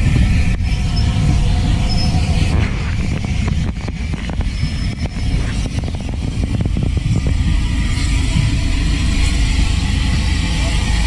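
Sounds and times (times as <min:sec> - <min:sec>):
train passing at speed: 0:00.0 - 0:11.0.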